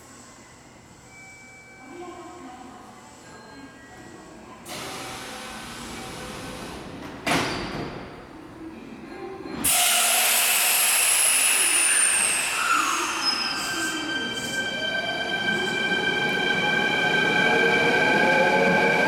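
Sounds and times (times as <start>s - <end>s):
air brake hiss: 9.7s - 14.0s.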